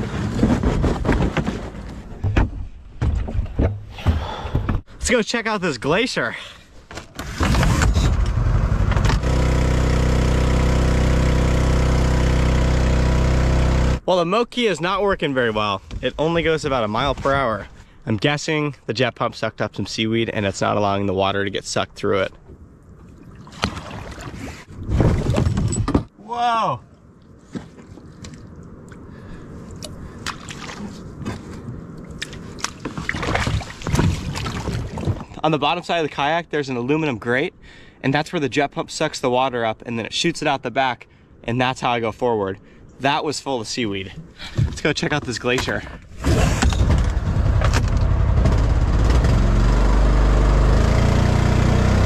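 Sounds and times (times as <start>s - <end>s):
small gas engine droning: 8.2s - 14.0s, 47.4s - 52.0s
water sloshing: 22.2s - 25.5s, 26.9s - 35.4s
wet squelches: 22.8s - 24.7s, 26.9s - 35.4s.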